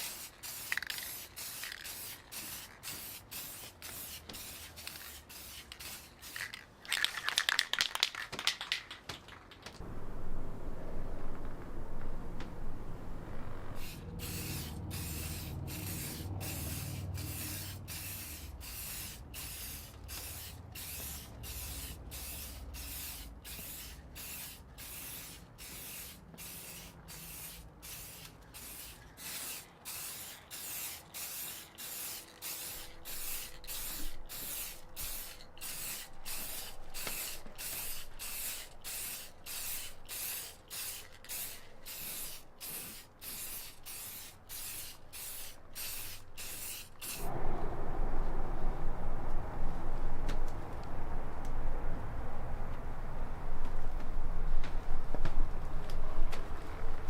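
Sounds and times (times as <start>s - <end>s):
spray bottle hissing: 0.0s - 6.5s, 13.8s - 47.3s
low rumble: 9.8s - 17.7s, 47.2s - 57.0s.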